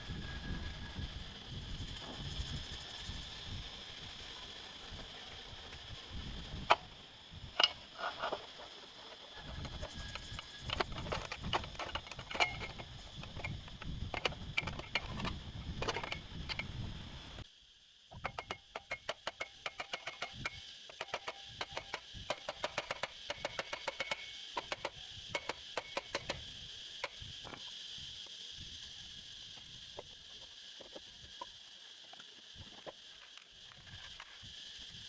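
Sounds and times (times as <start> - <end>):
knocks and clicks on engine parts: 18.1 - 26.4.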